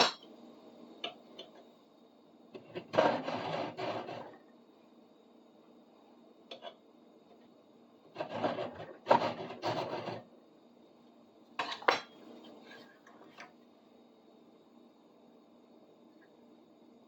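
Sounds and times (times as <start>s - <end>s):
hand file scraping metal: 2.8s - 4.4s, 8.2s - 10.2s.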